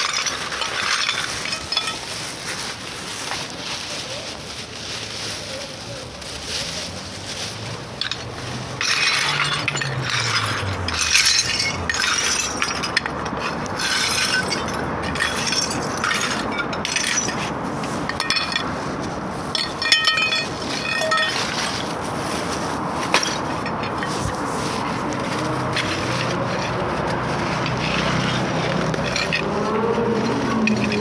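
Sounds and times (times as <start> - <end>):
stones scraping and clinking: 0.0 - 2.4, 7.5 - 31.0
metallic ringing clatter: 8.0 - 17.5, 19.5 - 21.9, 25.2 - 31.0.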